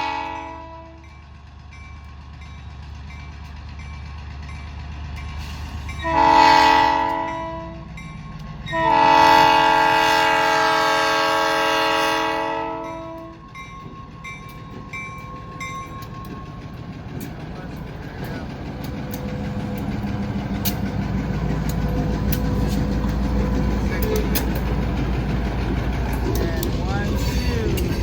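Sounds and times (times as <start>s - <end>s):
multi-chime locomotive air horn: 0.0s - 1.1s, 5.9s - 7.8s, 8.7s - 13.4s
low rumble of passing train: 0.0s - 28.0s.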